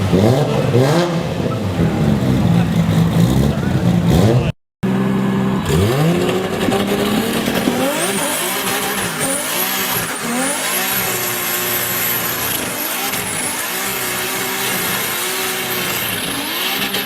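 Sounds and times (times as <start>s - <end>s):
car engine revving hard: 0.0s - 17.0s.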